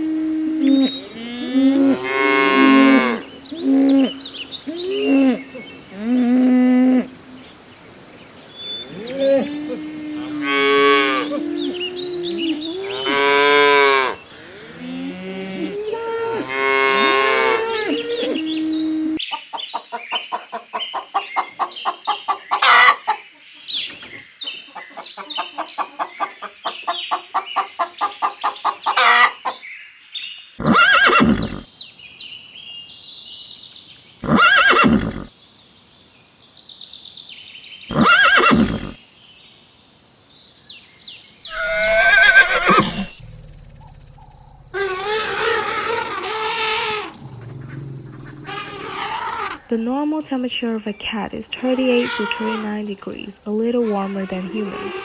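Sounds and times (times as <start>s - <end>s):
horses whinnying: 0.0s - 7.2s, 8.8s - 19.2s, 30.6s - 31.7s, 34.2s - 35.3s, 37.9s - 39.0s, 41.5s - 43.2s, 44.7s - 49.7s
cattle mooing: 0.0s - 7.4s, 8.8s - 19.2s, 30.6s - 31.6s, 37.9s - 39.0s, 41.5s - 43.3s, 44.2s - 49.6s.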